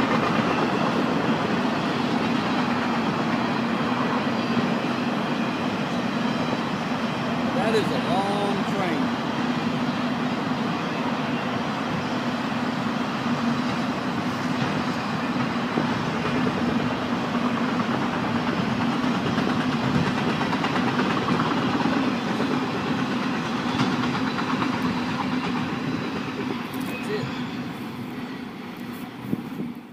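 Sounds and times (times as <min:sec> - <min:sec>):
train rolling past: 0:00.0 - 0:29.9.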